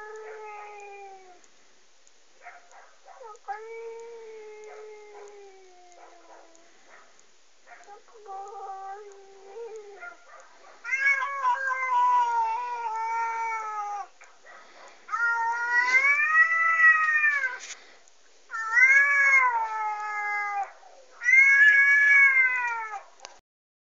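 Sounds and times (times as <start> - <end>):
angry cat yowling: 0.0 - 1.4, 3.1 - 6.7, 7.7 - 14.2, 15.1 - 17.6, 18.5 - 23.1.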